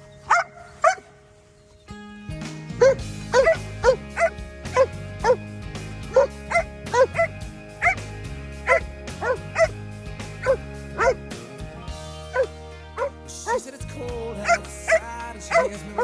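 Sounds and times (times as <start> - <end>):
background music: 0.0 - 16.0
dog barking: 0.2 - 1.2, 2.8 - 5.4, 6.1 - 8.0, 8.7 - 9.7, 10.4 - 11.2, 12.3 - 13.6, 14.4 - 16.0.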